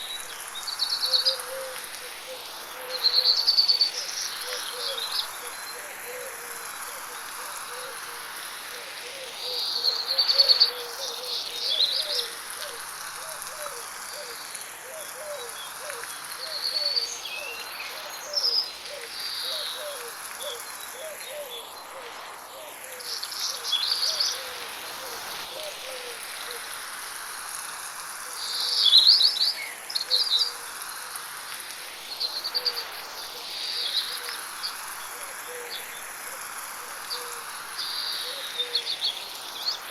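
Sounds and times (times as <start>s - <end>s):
light rain hissing: 0.0s - 39.9s.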